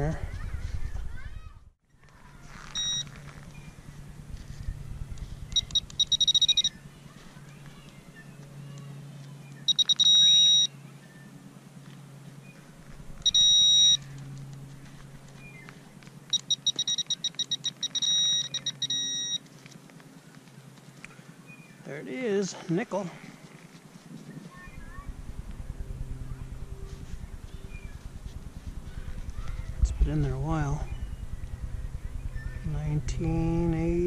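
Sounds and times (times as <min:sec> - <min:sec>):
metal detector beeping: 0:02.6 - 0:03.7, 0:05.3 - 0:06.8, 0:09.6 - 0:10.8, 0:13.2 - 0:14.1, 0:16.3 - 0:19.4.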